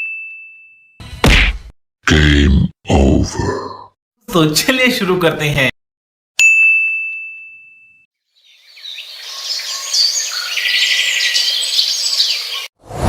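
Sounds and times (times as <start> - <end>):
birds chirping: 8.3 - 12.8.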